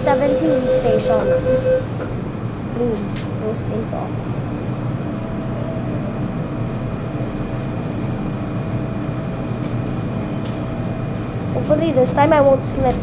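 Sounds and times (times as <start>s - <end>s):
faint whine tones: 0.0s - 2.0s
metro train running hum: 0.0s - 13.0s.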